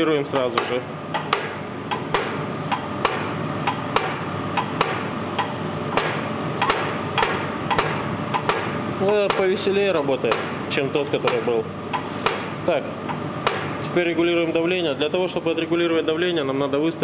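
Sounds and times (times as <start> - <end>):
diesel injector sharp cracks: 0.5 - 9.6.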